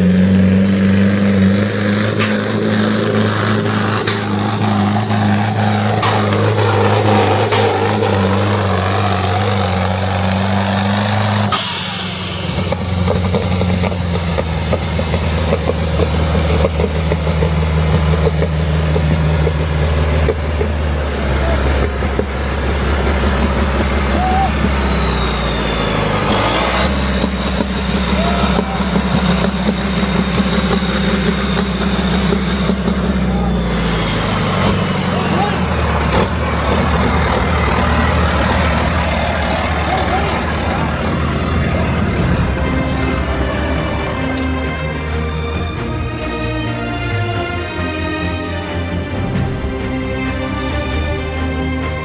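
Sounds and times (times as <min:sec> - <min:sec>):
diesel tractor engine running: 0:00.0 - 0:52.0.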